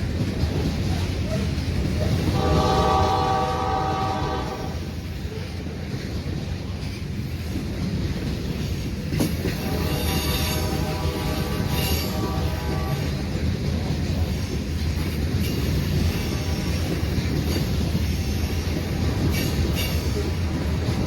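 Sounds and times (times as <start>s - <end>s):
train rumble: 0.0s - 21.0s
locomotive horn blast: 2.3s - 5.0s, 9.6s - 13.3s.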